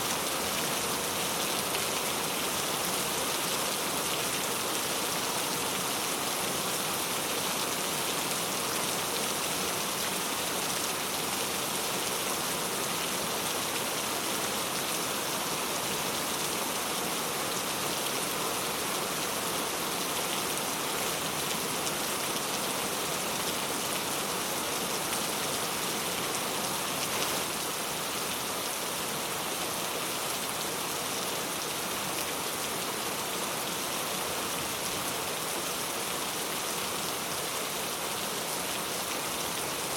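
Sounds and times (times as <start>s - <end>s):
rain pattering on surfaces: 0.1s - 28.7s.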